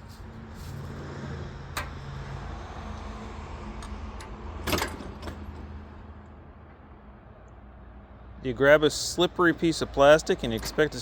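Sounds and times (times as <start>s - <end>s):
metal clank: 3.8s - 5.6s.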